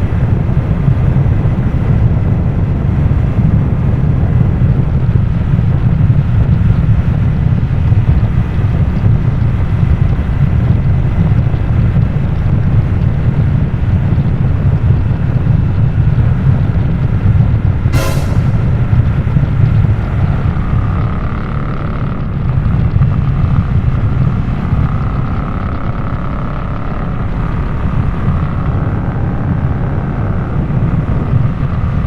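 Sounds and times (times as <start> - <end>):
motorcycle engine running: 0.0 - 32.0
wind noise on microphone: 0.0 - 32.0
brief sharp sound: 17.9 - 19.0.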